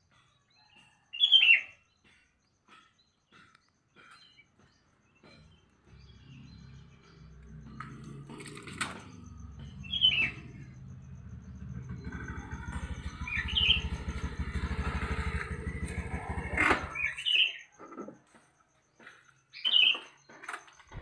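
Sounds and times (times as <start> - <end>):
bird chirping: 1.2 - 21.0
engine running: 5.2 - 17.4.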